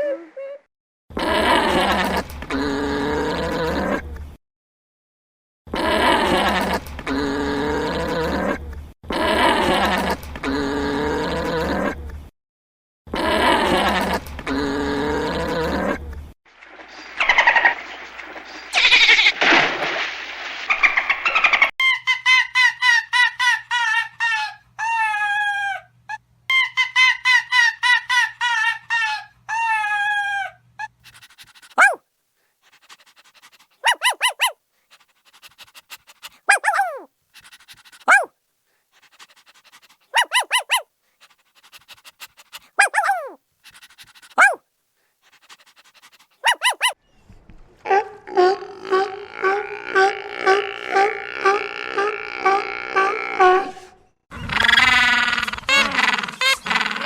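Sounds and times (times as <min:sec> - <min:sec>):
sharp falling animal calls: 0:16.7 - 0:21.7
high clear animal notes: 0:33.8 - 0:34.6, 0:40.1 - 0:40.8.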